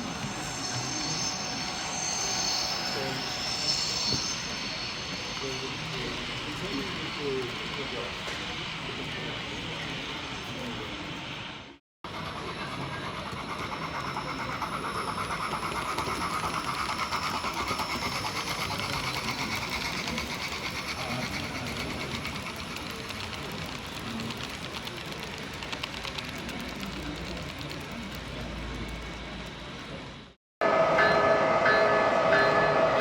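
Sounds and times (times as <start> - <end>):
wheels clicking on track: 12.1 - 30.3.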